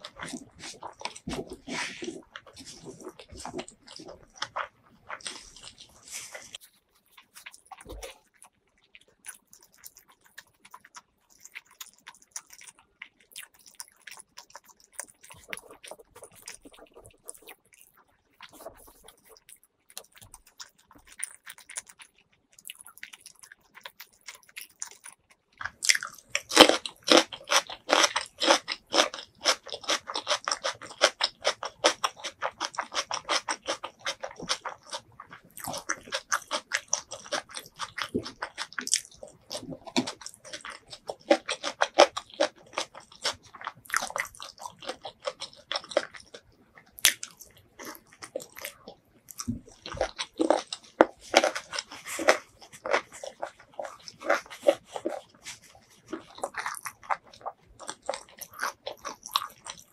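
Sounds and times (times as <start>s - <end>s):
crunchy chewing of food: 0.0s - 59.9s.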